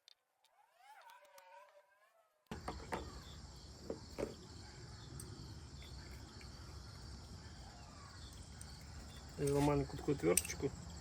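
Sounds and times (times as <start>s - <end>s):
crickets chirring: 2.5s - 11.0s.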